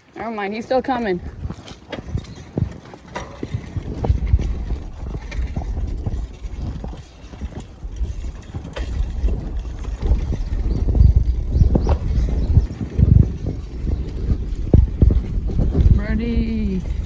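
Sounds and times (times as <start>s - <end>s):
wind rumble on microphone: 0.0s - 17.0s
bike knocking and rattling: 0.8s - 17.0s.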